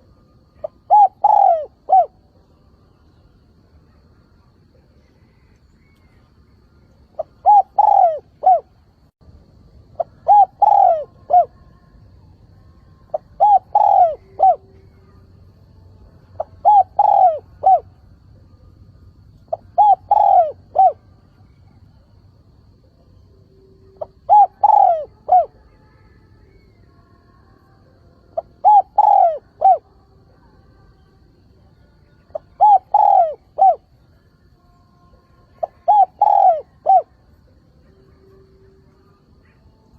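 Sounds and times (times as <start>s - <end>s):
dove cooing: 0.0s - 2.3s, 7.2s - 8.8s, 9.9s - 11.7s, 13.1s - 15.2s, 16.4s - 18.0s, 19.4s - 21.8s, 23.9s - 25.8s, 28.4s - 29.9s, 32.3s - 34.0s, 35.4s - 37.2s.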